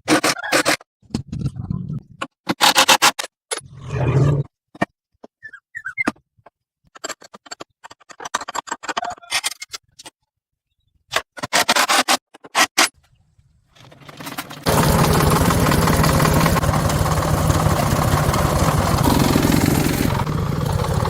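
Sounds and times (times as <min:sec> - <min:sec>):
clicks and scrapes on metal parts: 0:06.9 - 0:10.2, 0:11.1 - 0:13.0
engine starting and running: 0:13.7 - 0:21.0.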